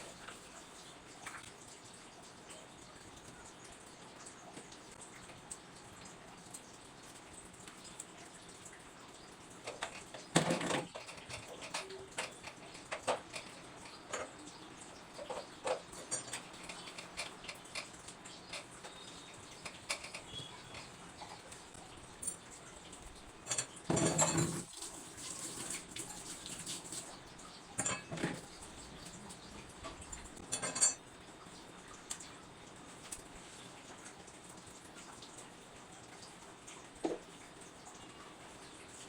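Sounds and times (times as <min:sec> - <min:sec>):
dishes and pots clinking: 0:09.6 - 0:21.5, 0:23.4 - 0:24.7, 0:27.8 - 0:28.7, 0:29.8 - 0:31.0
dishes clattering: 0:09.7 - 0:14.5, 0:15.2 - 0:21.4, 0:23.4 - 0:24.7, 0:27.8 - 0:28.6, 0:29.9 - 0:31.0.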